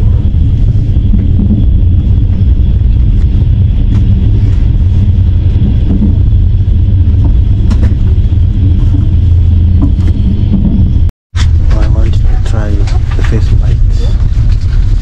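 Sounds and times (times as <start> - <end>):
train rumble inside carriage: 0.0 - 15.0.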